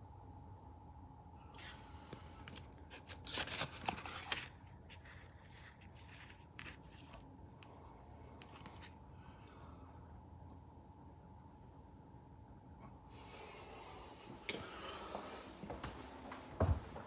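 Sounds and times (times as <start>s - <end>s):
faint steady hum: 0.0s - 17.0s
rustling handling noise: 1.6s - 7.3s.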